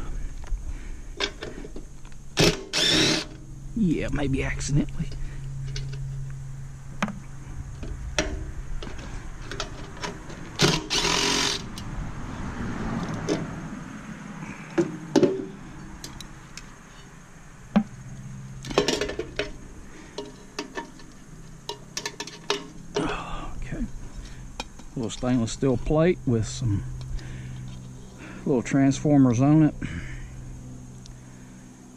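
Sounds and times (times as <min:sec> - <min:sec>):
metal parts knocking and clinking: 0:18.6 - 0:19.6, 0:20.2 - 0:23.1.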